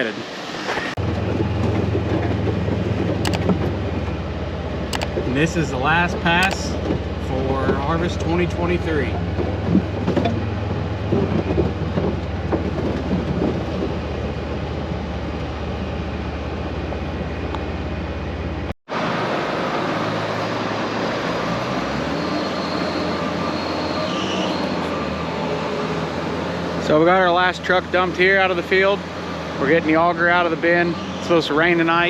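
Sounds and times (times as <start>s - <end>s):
farm machinery engine hum: 1.0s - 21.9s.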